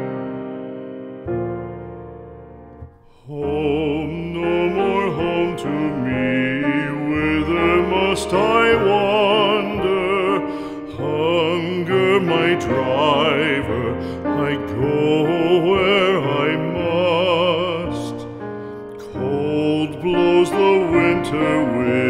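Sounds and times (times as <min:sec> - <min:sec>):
piano chord ringing: 0:00.0 - 0:22.0
slow song with piano: 0:00.0 - 0:22.0.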